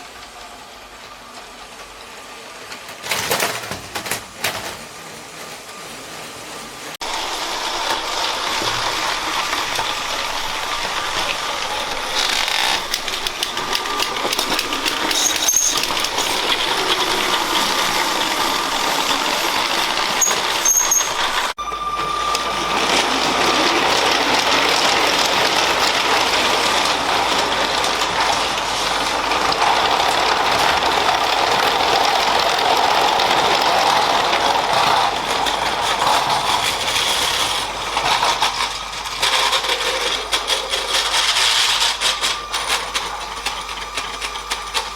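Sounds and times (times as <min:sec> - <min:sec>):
toy train motor whirring: 0:07.1 - 0:21.6, 0:29.1 - 0:44.9.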